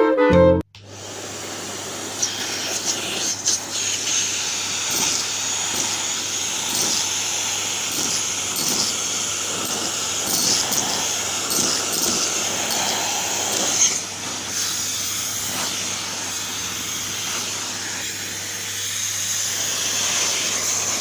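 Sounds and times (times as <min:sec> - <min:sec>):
vacuum cleaner running: 0:00.8 - 0:21.0
small objects rattling up hose: 0:02.3 - 0:14.0.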